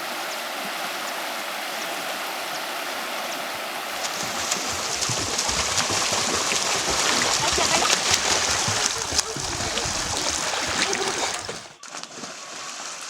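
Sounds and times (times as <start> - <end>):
water running and splashing: 0.0 - 13.0
water drips: 3.8 - 13.0.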